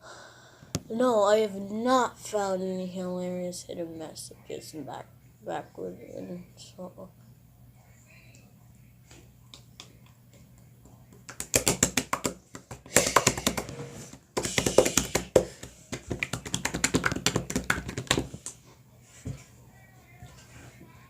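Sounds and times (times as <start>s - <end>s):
rapid clicking and tapping: 11.1s - 13.7s, 14.4s - 18.6s.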